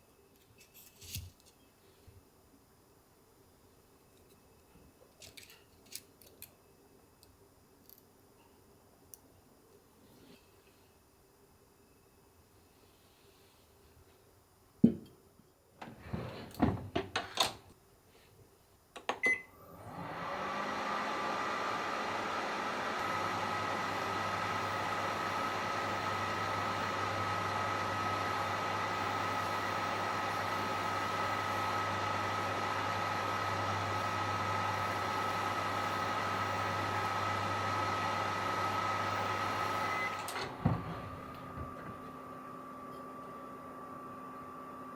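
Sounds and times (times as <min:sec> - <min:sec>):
microwave oven humming: 0:19.1 - 0:44.9.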